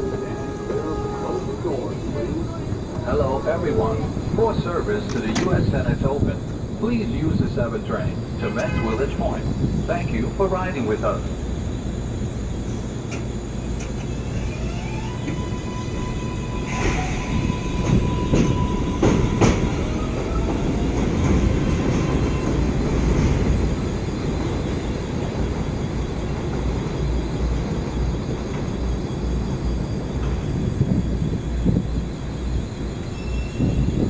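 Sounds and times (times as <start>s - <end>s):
train motor whine: 0.0s - 4.1s, 12.6s - 20.8s
subway train rumbling: 0.0s - 34.0s
wheels clacking on rails: 13.0s - 34.0s.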